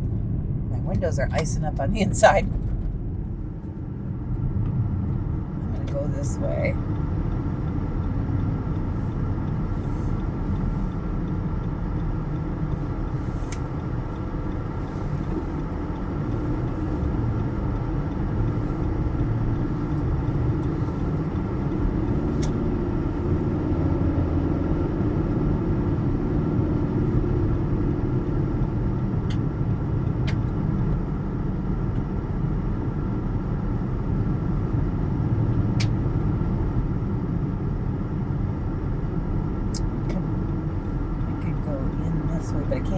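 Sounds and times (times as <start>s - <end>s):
car engine and road rumble: 0.0s - 42.9s
faint sharp clicks: 35.8s - 36.0s.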